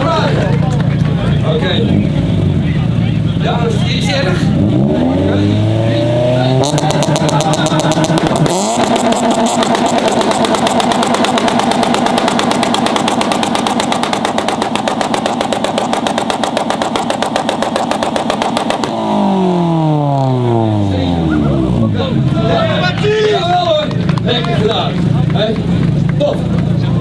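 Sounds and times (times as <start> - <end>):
car engine popping on rev limiter: 6.6 - 20.9.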